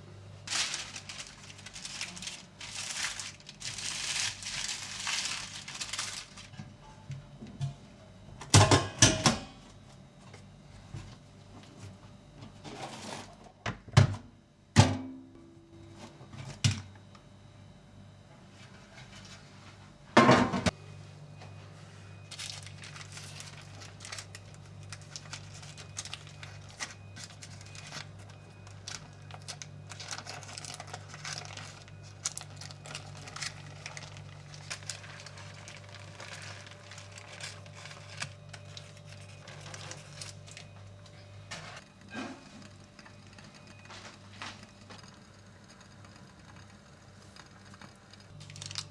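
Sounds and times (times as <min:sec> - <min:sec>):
steady low hum: 0:00.0 - 0:48.9
crinkling and rustling: 0:00.4 - 0:06.9, 0:21.4 - 0:45.2, 0:47.4 - 0:48.9.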